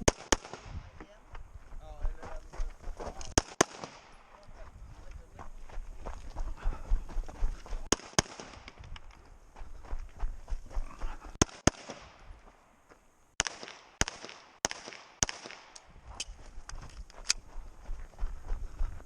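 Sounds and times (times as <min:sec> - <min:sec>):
gunshots with echoing tail: 0:00.0 - 0:00.9, 0:03.3 - 0:04.3, 0:07.8 - 0:08.9, 0:11.4 - 0:12.3, 0:13.4 - 0:15.8.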